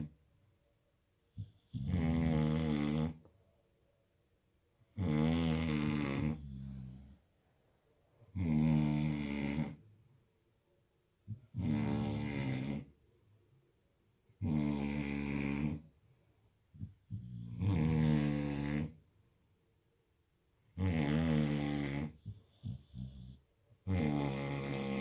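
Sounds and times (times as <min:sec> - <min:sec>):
dog snoring: 0:01.4 - 0:03.2, 0:04.9 - 0:07.2, 0:08.3 - 0:09.8, 0:11.3 - 0:12.9, 0:14.3 - 0:15.9, 0:16.8 - 0:19.0, 0:20.7 - 0:25.0.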